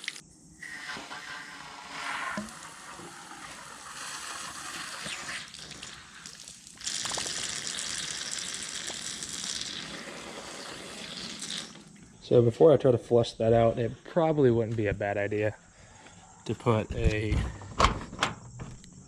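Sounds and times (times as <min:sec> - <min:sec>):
water running and splashing: 0:00.0 - 0:00.2, 0:02.3 - 0:12.0
hissing water spray: 0:00.0 - 0:12.0.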